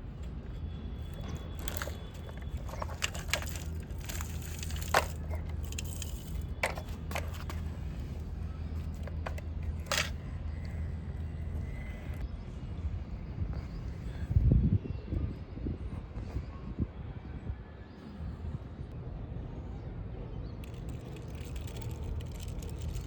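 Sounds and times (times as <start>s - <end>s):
toys being handled: 0.0s - 12.2s, 20.6s - 23.0s
steady low hum: 0.0s - 14.8s.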